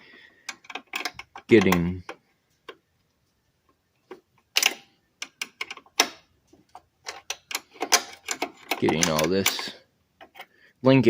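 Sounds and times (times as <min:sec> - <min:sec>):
hand tools clicking on metal: 0:07.0 - 0:10.4.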